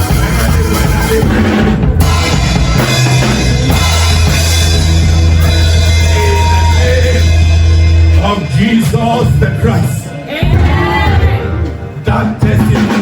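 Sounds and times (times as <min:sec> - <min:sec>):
bass drum and snare: 0:00.0 - 0:08.4
heavy bass line: 0:00.0 - 0:13.0
loud band music: 0:00.0 - 0:13.0.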